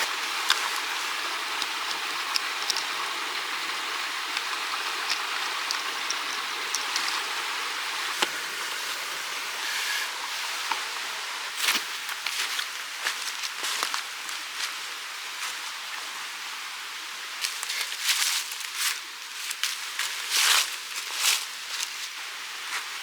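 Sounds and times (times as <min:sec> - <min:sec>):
mountain stream rushing: 0:00.0 - 0:23.0
small clicks and ticks: 0:00.1 - 0:08.4.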